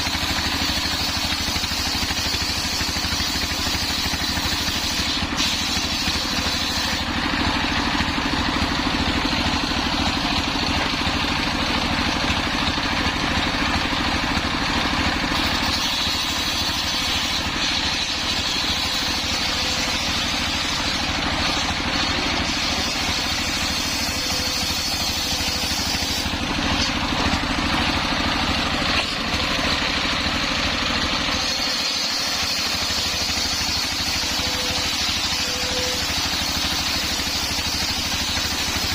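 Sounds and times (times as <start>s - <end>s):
circular saw cutting log: 0.0s - 38.9s
engine rumble: 4.4s - 31.8s.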